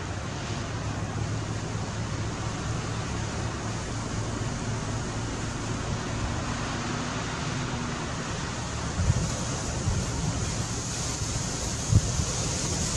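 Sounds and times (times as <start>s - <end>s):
rushing water: 0.0s - 12.9s
wind on microphone: 5.8s - 12.9s
low buffeting thumps from gusts: 7.9s - 12.9s.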